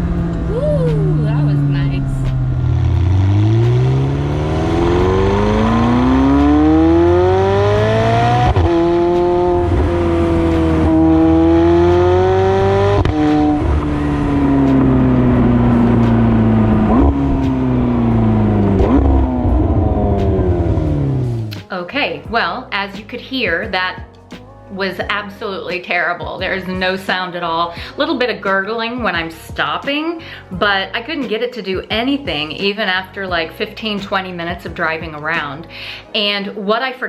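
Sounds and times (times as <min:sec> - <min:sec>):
car engine accelerating hard: 0:00.0 - 0:21.6
engine rev blips: 0:00.0 - 0:21.6.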